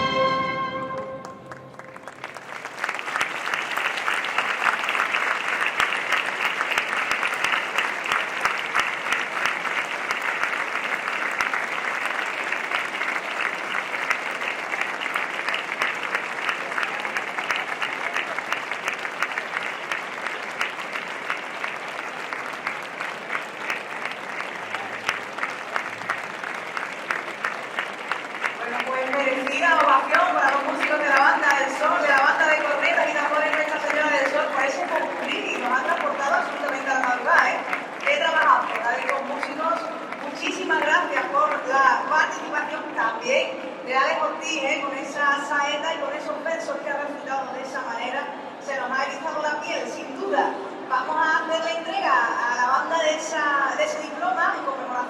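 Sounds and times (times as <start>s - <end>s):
audience applauding: 0.0s - 42.4s.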